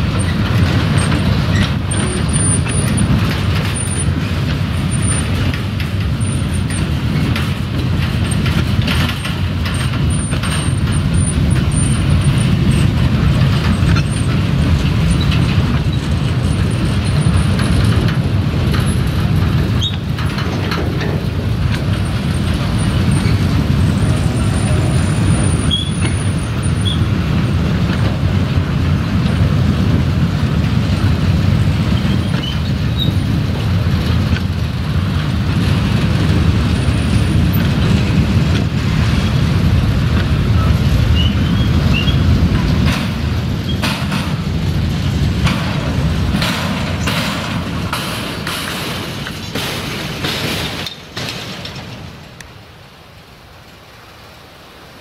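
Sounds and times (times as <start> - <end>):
faint clanks of wheels and couplings: 0.0 - 29.4, 30.6 - 52.7
train rumbling on track: 0.0 - 55.0.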